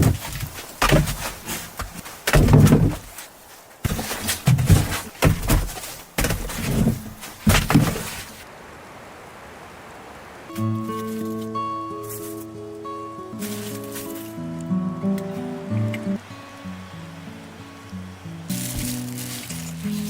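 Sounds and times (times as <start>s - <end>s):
irregular knocks and thuds: 0.0s - 8.4s.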